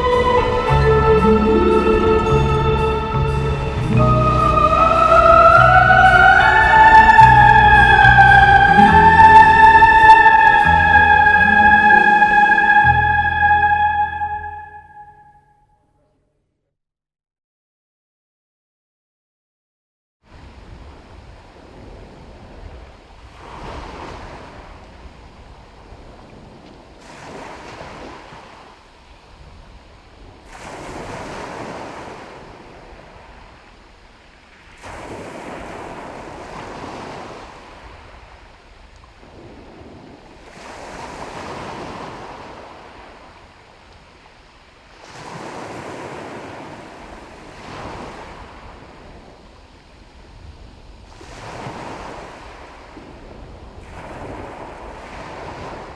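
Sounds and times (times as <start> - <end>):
sea waves washing onto shore: 20.4 - 55.9.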